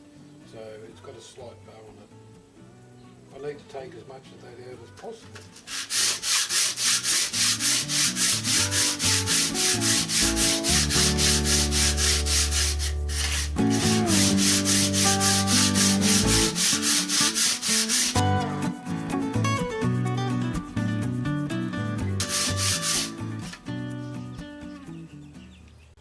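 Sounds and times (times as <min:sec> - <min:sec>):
background music with held notes: 0:00.0 - 0:25.7
metal plate rubbing on abrasive sheet: 0:05.5 - 0:18.2, 0:22.2 - 0:23.5.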